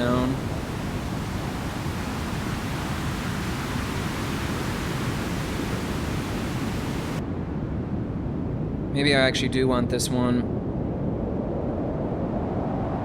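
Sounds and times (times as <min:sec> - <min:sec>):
synthesized white noise hiss: 0:00.0 - 0:07.2.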